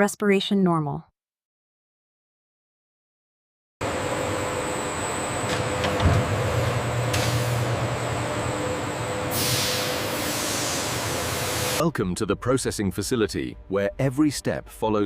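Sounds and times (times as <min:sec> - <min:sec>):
factory machinery humming: 0:03.8 - 0:12.0.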